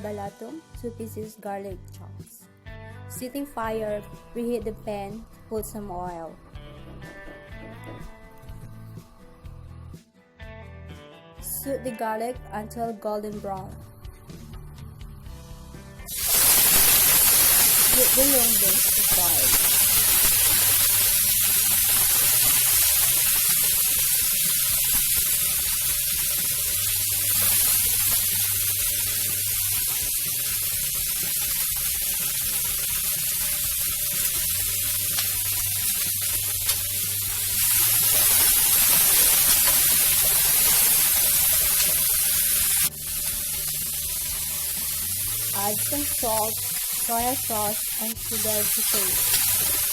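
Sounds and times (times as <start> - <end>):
beans sizzling in hot oil: 16.1 - 49.9.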